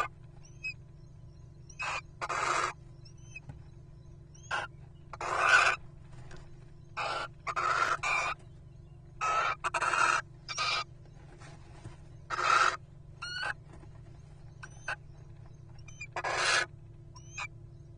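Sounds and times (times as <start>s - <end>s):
owls screeching: 1.7s - 3.4s, 4.4s - 5.8s, 7.0s - 8.4s, 9.2s - 10.9s, 12.3s - 13.6s, 15.8s - 17.5s.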